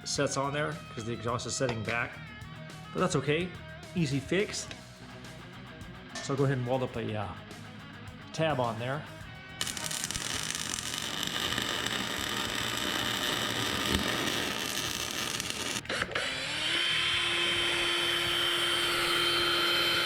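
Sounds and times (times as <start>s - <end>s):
welding crackling hiss: 9.6s - 15.9s
power drill whining: 9.6s - 20.0s.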